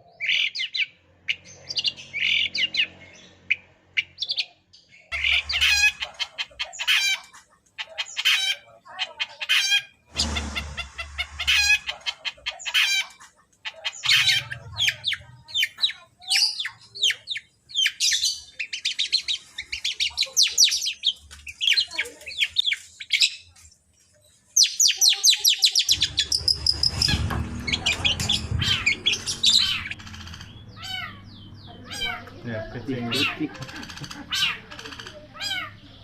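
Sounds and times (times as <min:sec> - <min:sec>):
bird singing chirps and trills: 0:00.0 - 0:36.0
low rumble: 0:26.0 - 0:31.9.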